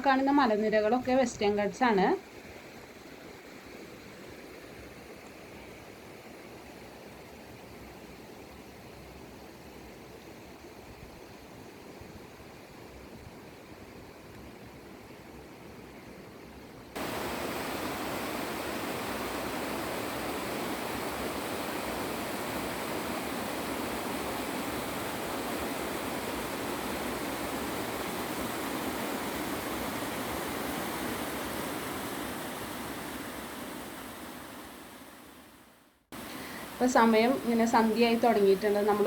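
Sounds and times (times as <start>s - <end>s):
stream water rushing: 2.2s - 39.0s.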